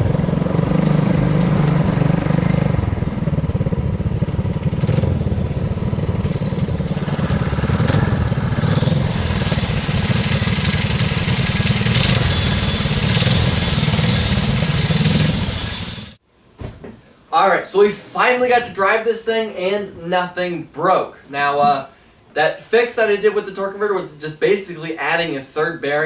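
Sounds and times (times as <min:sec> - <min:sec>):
go-kart engines running: 0:00.0 - 0:16.2.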